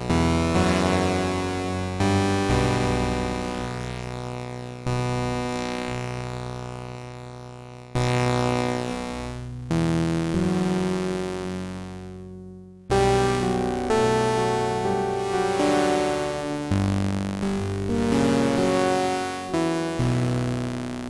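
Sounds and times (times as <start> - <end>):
synthesizer chords: 0.1 - 4.3, 12.9 - 20.7.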